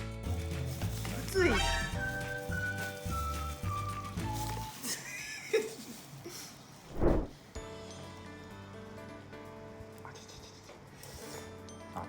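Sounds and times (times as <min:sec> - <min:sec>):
soft background music: 0:00.0 - 0:05.6, 0:07.3 - 0:12.0.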